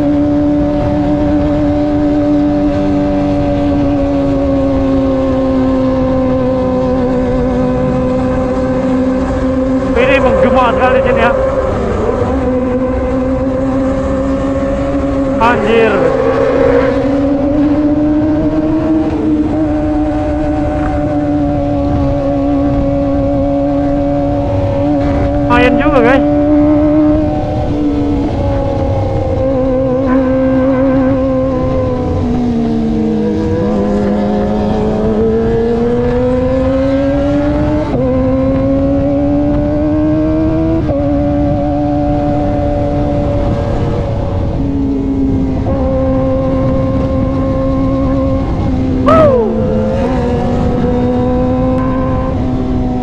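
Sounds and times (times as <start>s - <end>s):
motorcycle engine running: 11.3s - 53.0s.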